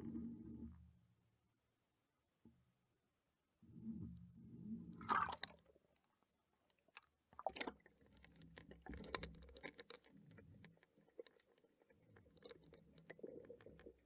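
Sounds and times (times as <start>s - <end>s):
low rumble of moving water: 0.0s - 1.1s, 3.6s - 14.0s
underwater clicks and crackles: 4.9s - 14.0s.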